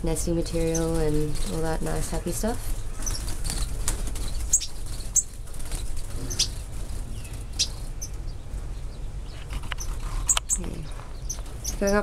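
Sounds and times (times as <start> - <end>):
small birds chirping: 0.0 - 12.0
wings flapping: 0.9 - 8.0.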